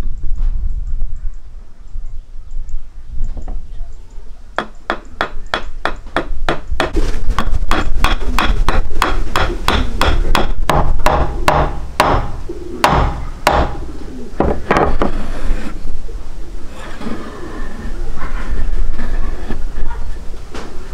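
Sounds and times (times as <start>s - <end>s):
sharp repeated knocks: 4.6s - 13.8s.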